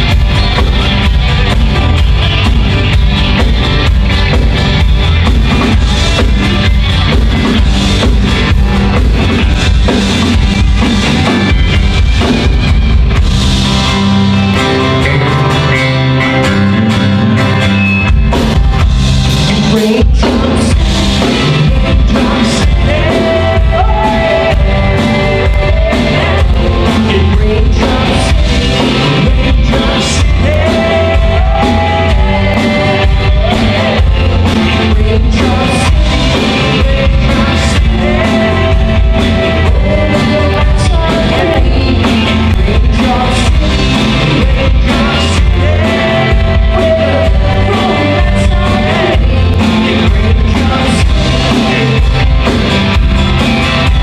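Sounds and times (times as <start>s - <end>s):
live rock band: 0.0s - 54.0s.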